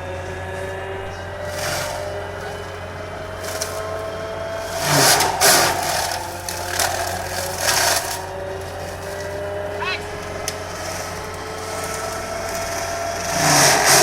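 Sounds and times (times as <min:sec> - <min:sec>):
excavator engine running: 0:00.0 - 0:14.0
loud crunching bursts: 0:00.0 - 0:14.0
mulcher head shredding wood: 0:00.0 - 0:14.0.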